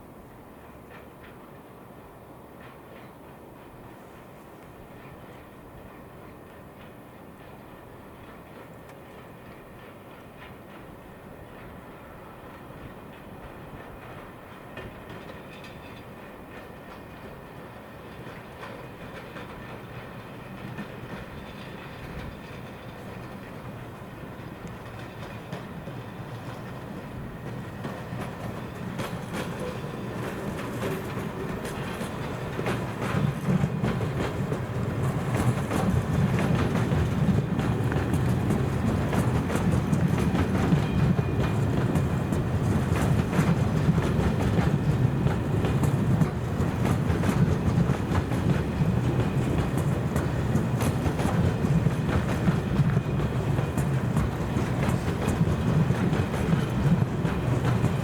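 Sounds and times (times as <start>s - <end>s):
train rumbling past: 0.0s - 58.0s
wheels clicking over rail joints: 18.0s - 58.0s.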